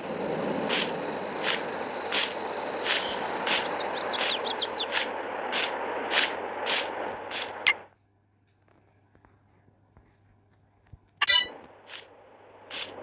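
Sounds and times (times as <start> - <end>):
birds chirping: 0.0 - 5.8
insects humming: 0.0 - 7.8
rhythmic swishing crunch: 0.0 - 7.9.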